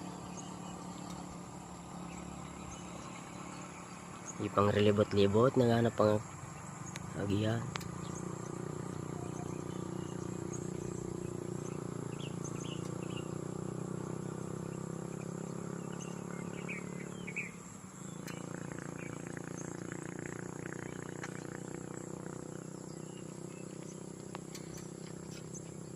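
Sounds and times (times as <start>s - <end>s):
pigeons cooing: 8.2s - 13.4s.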